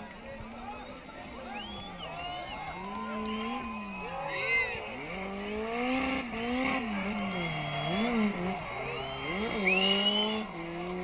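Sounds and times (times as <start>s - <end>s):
car engine revving: 4.8s - 11.0s
tyre squeal: 7.1s - 10.5s.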